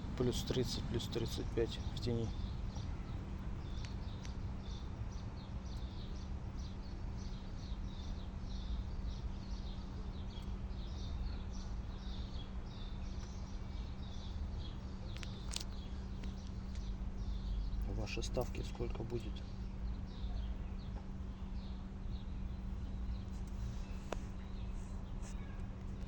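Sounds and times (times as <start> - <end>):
small bird chirping: 0.2 - 26.0.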